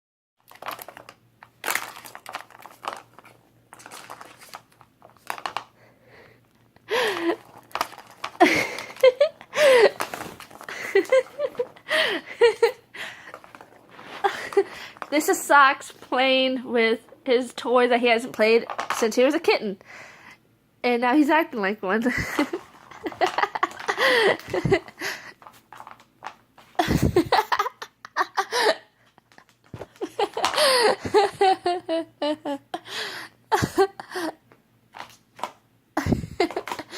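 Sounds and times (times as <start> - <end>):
crinkly toy rustling: 0.4 - 5.9, 6.9 - 17.3, 18.1 - 19.2, 22.1 - 27.3, 34.9 - 35.6, 36.4 - 36.9
person laughing and giggling: 6.9 - 7.6, 8.3 - 13.4, 14.0 - 15.0, 22.1 - 25.4, 26.8 - 34.4, 36.0 - 36.9.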